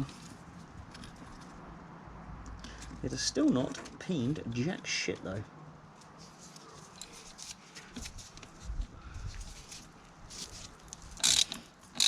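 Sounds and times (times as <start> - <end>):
metallic ticks of chain tool: 11.2 - 12.0.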